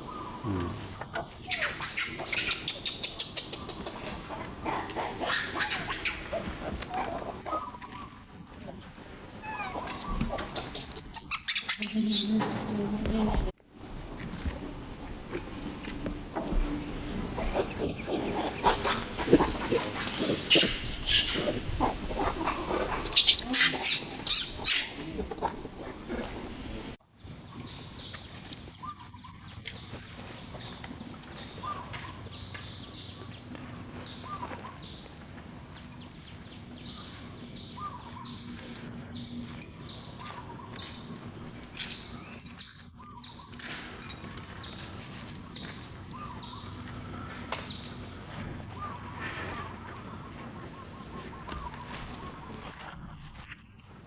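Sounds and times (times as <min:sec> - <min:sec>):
chirping animal calls: 0:00.0 - 0:08.1, 0:17.4 - 0:27.0.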